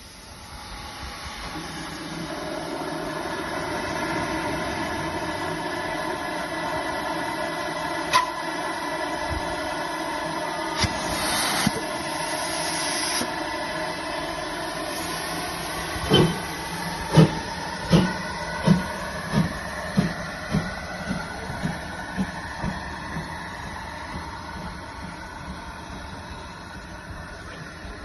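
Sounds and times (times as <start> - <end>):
steam hissing: 0.0 - 28.0
steam locomotive exhaust beats: 0.0 - 28.0.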